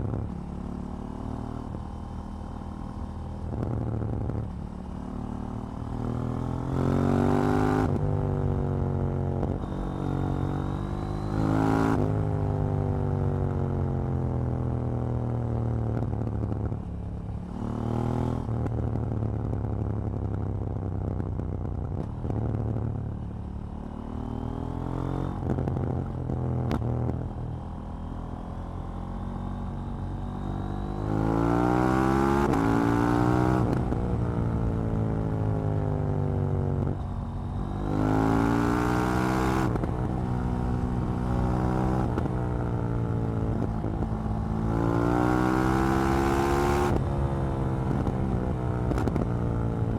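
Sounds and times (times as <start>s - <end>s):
motorcycle engine revving: 23.8s - 49.9s.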